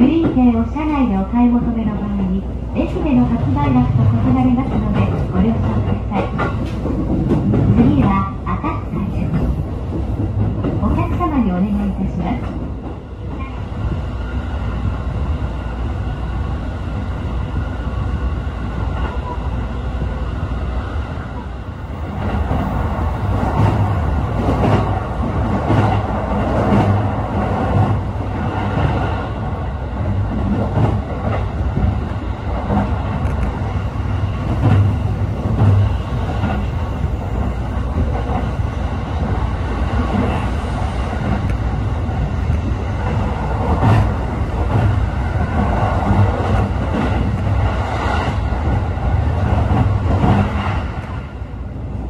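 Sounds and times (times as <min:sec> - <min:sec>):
train wheels rumbling on rail: 0:00.0 - 0:52.0
track knocks and clatter: 0:02.8 - 0:11.5, 0:22.0 - 0:51.3.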